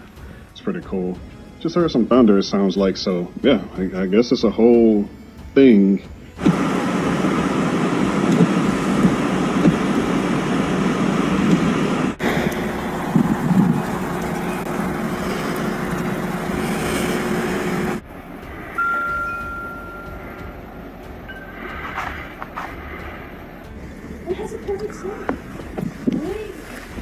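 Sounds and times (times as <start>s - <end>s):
faint steady hum: 6.0s - 27.0s
vehicles on a road: 6.4s - 27.0s.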